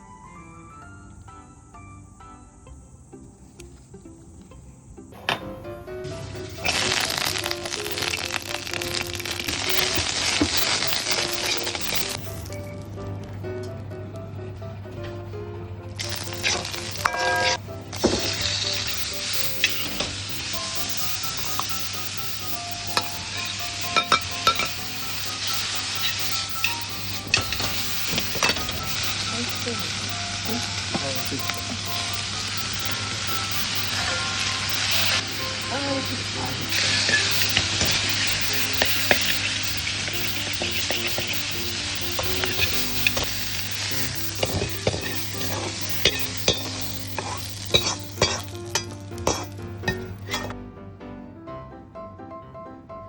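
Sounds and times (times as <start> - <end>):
food sizzling in frying pan: 5.2 - 13.4, 16.0 - 50.5
utensil clicking against pan: 36.5 - 50.5.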